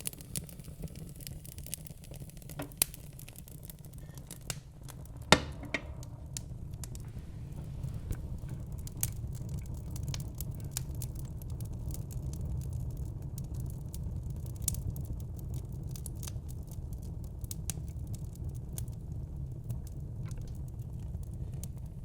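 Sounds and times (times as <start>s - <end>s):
fire crackling and popping: 0.0s - 22.0s
low steady rumble: 0.1s - 15.3s.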